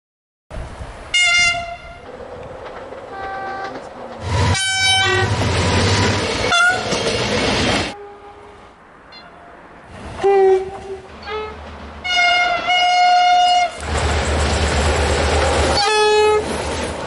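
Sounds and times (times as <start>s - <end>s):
train running: 0.6s - 17.0s
diesel train horn blasts: 1.1s - 2.0s, 3.1s - 7.0s, 7.9s - 9.5s, 10.2s - 13.8s, 15.7s - 16.4s.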